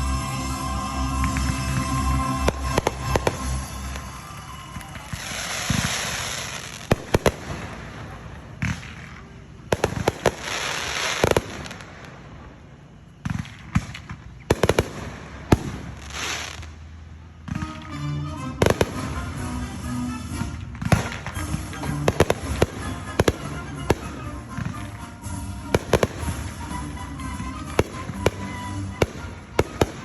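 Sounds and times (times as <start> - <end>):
background music: 0.0 - 7.4, 17.4 - 30.0
fireworks bangs: 0.0 - 30.0
hissing crackling firework showers: 0.0 - 30.0.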